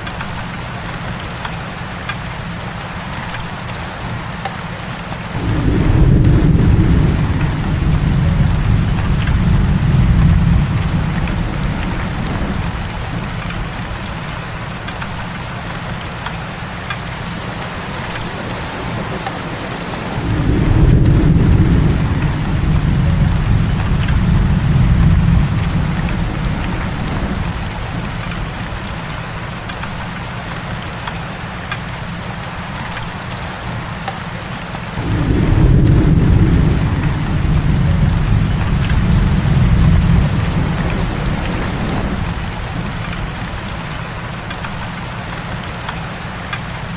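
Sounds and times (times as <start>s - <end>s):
heavy rain hissing: 0.0s - 46.9s
deep rolling thunder: 5.3s - 15.3s, 18.0s - 29.3s, 35.0s - 45.8s.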